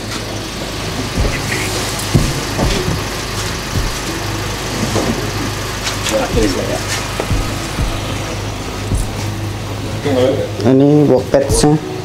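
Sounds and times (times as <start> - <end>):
car engine idling: 0.0 - 12.0
cardboard boxes knocking: 2.1 - 3.0.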